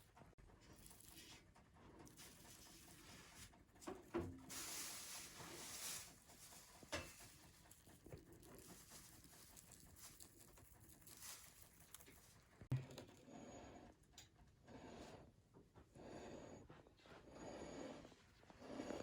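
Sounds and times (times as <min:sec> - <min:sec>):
faint rustling and handling: 0:00.6 - 0:12.7.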